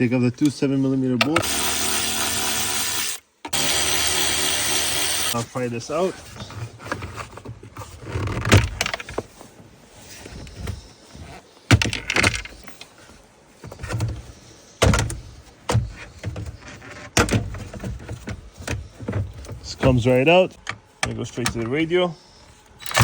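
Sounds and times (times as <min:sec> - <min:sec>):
plastic scraping and rattling: 0:06.2 - 0:21.8.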